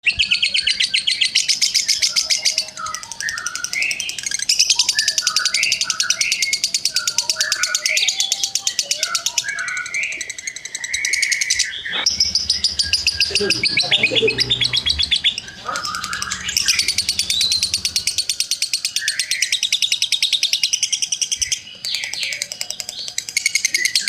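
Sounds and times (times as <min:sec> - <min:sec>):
bird chirping: 0:00.0 - 0:24.0
bird rattling trill: 0:11.2 - 0:18.9.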